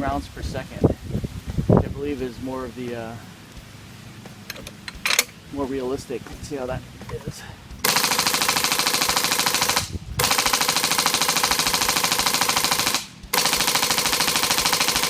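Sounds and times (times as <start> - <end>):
airsoft machine gun firing bursts: 7.8 - 15.0.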